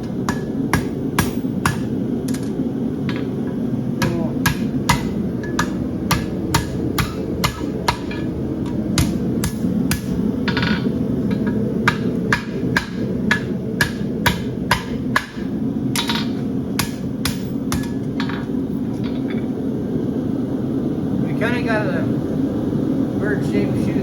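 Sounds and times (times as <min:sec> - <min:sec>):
hammer striking horseshoe on anvil: 0:00.0 - 0:02.5, 0:04.0 - 0:19.2
steady low noise: 0:00.0 - 0:24.0.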